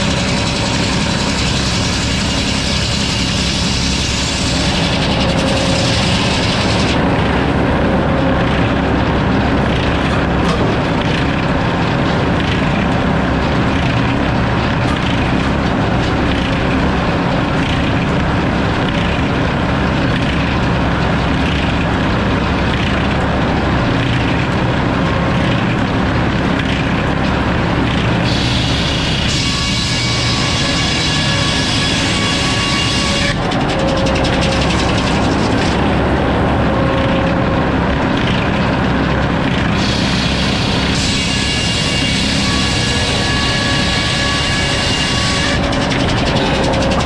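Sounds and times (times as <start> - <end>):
saw blade spinning: 0.0 - 7.1
sawmill engine running: 0.0 - 47.0.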